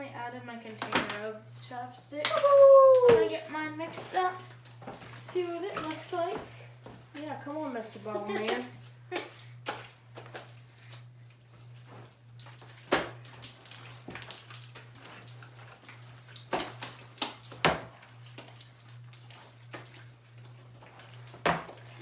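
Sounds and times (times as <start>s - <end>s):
slime being stirred: 3.3s - 22.0s.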